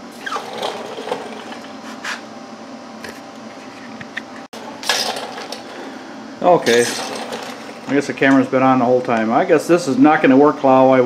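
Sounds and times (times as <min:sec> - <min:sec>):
metal parts knocking and clinking: 0:04.8 - 0:05.7, 0:06.6 - 0:07.6.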